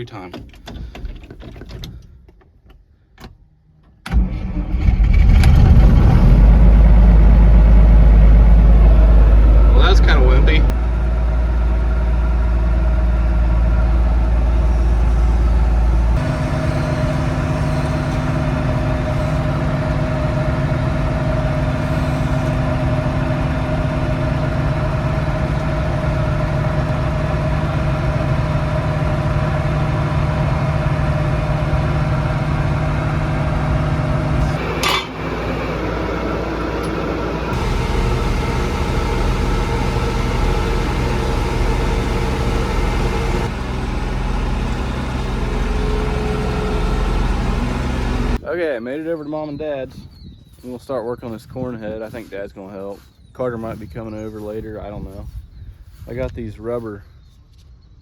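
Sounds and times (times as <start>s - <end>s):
diesel engine running: 4.1s - 48.5s.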